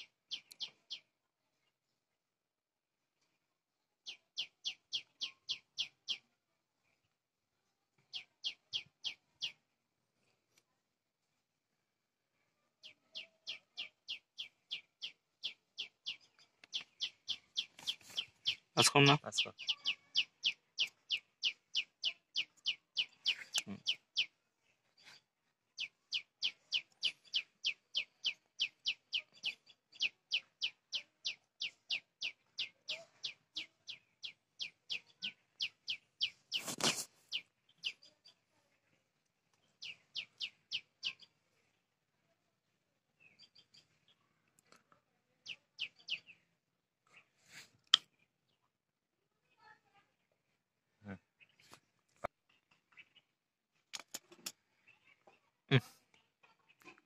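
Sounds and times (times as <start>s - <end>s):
bird chirping rapidly: 13.1s - 24.3s, 25.8s - 38.2s.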